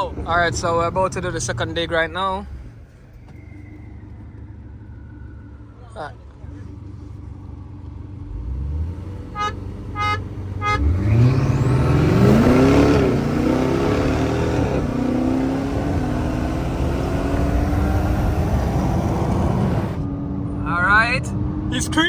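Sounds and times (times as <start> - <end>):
car accelerating at full throttle: 7.8 - 22.0.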